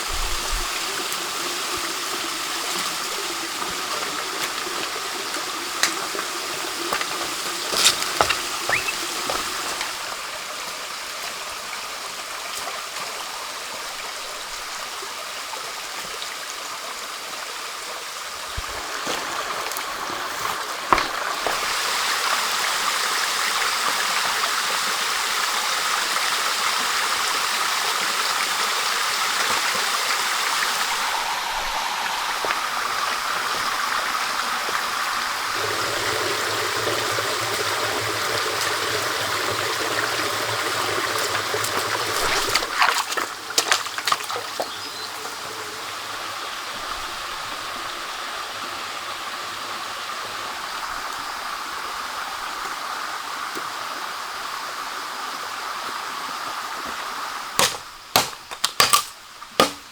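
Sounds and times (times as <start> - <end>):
stream flowing: 0.0 - 59.9
sharp knocks or splashes: 6.9 - 10.0, 18.6 - 21.8, 41.7 - 44.7, 57.6 - 59.9.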